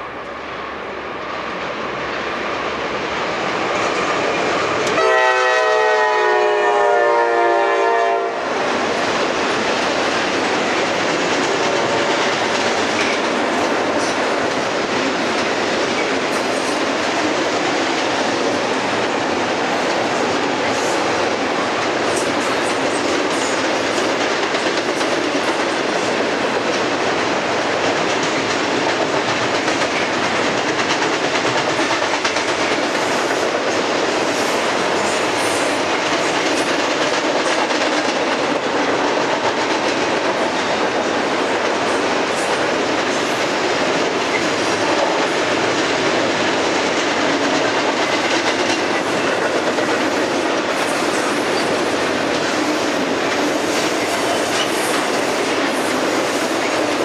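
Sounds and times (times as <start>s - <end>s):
train roaring: 0.0s - 57.0s
train wheels clattering on bridge: 1.4s - 57.0s
locomotive air horn blast: 5.0s - 8.5s.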